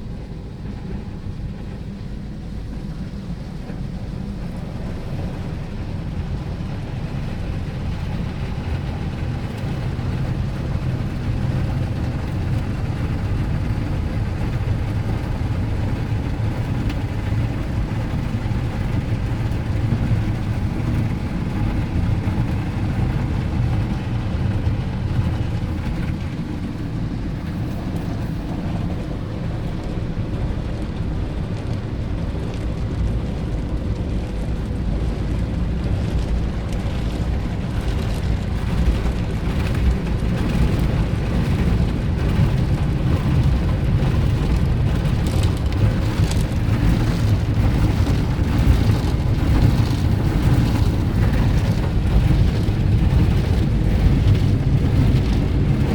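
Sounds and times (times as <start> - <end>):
car wash spray and brushes: 14.1 - 55.9.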